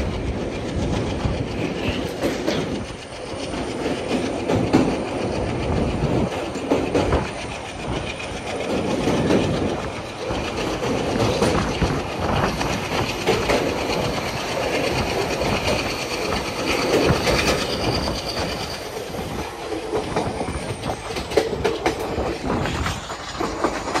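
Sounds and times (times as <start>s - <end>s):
train rumbling: 0.0s - 24.0s
wheels clattering over rail joints: 0.0s - 24.0s
faint wheel squeal: 15.7s - 21.3s.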